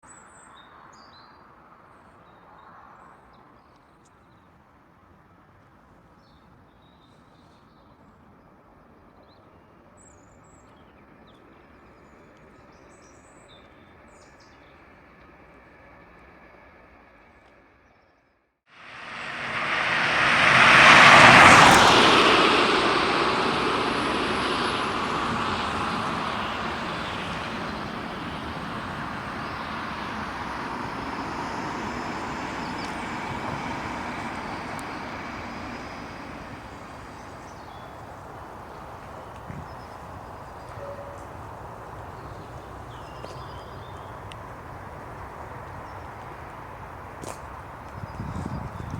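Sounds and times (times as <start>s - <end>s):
jet aircraft roar: 18.8s - 48.9s.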